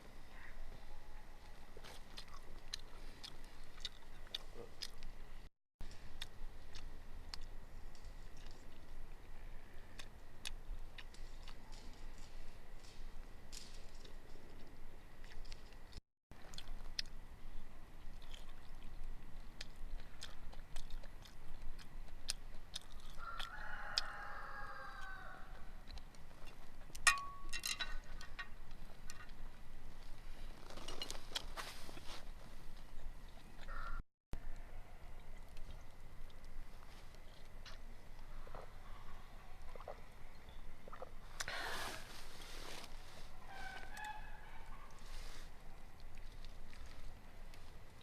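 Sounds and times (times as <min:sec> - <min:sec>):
close chewing: 0:01.4 - 0:27.1, 0:34.6 - 0:48.0
rooster crowing: 0:23.2 - 0:25.5.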